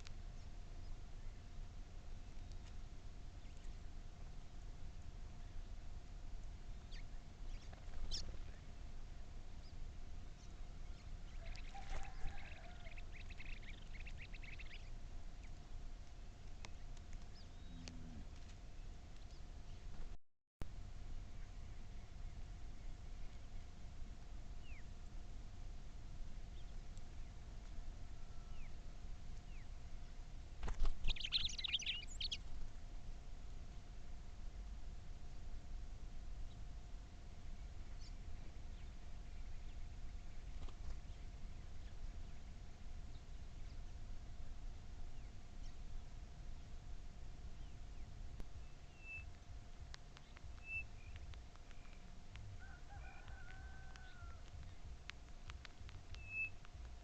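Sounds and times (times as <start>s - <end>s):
steady low rumble: 0.0s - 57.0s
bird twittering chirps: 10.4s - 15.6s, 31.0s - 32.4s, 50.2s - 52.1s, 56.1s - 56.7s.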